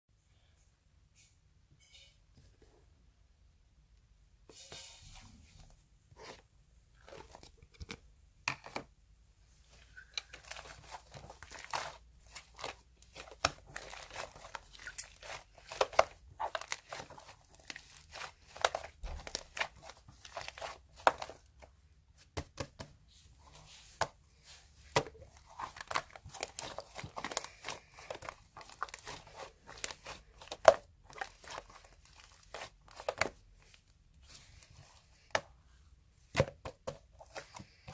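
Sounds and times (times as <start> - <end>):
slime crackling and popping: 10.4 - 21.2, 25.6 - 33.4.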